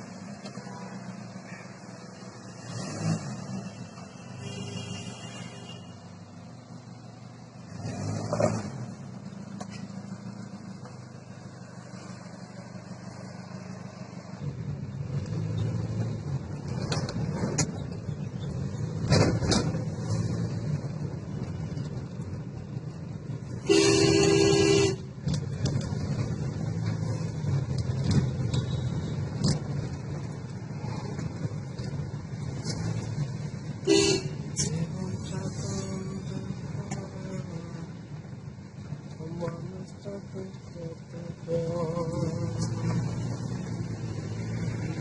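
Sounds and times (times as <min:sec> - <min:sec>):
vehicle horn: 0:04.4 - 0:06.0, 0:23.6 - 0:25.1, 0:33.8 - 0:34.7.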